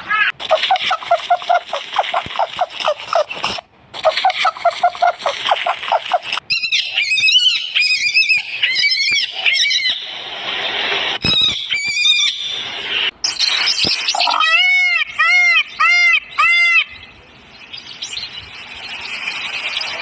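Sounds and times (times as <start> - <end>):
animal squealing: 4.0 - 10.0, 14.1 - 15.6.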